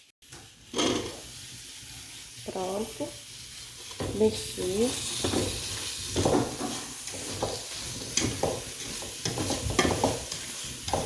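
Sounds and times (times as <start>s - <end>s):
steady sizzle: 0.0s - 11.0s
spoon scraping and stirring in pot: 5.0s - 11.0s.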